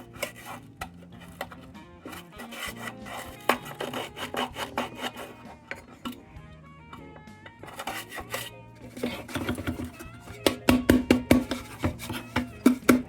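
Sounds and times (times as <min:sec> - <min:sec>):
metal lantern scraping and rattling: 0:00.0 - 0:13.0
rapid knocking on ringing metal: 0:09.5 - 0:13.0.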